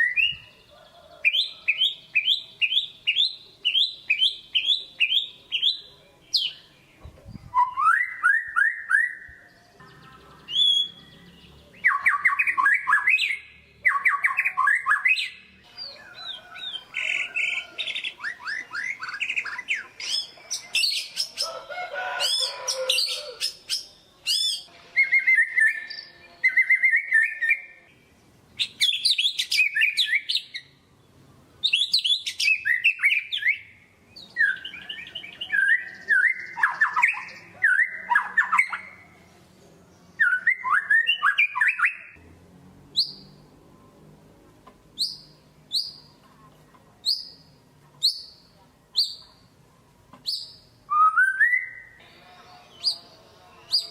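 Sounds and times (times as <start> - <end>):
songbird whistling and chattering: 1.3 - 6.7, 7.3 - 11.1, 11.7 - 21.5, 28.6 - 30.7, 31.6 - 39.0, 40.2 - 42.2, 45.0 - 46.1, 47.0 - 49.3, 50.2 - 52.1.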